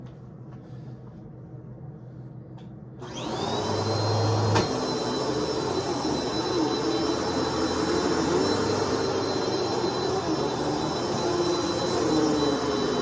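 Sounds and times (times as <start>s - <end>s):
vacuum cleaner running: 3.0s - 13.0s.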